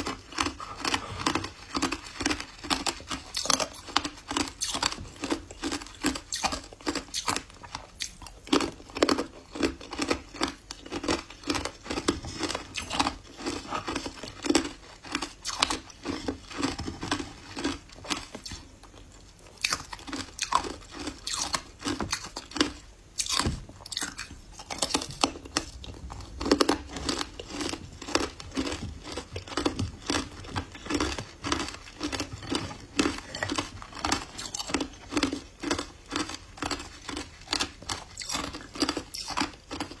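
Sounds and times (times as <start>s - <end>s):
ice being chewed: 0.0s - 40.0s.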